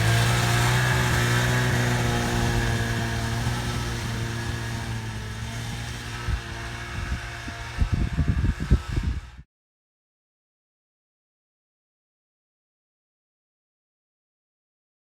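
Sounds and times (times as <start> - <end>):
snowmobile engine running: 0.0 - 9.4.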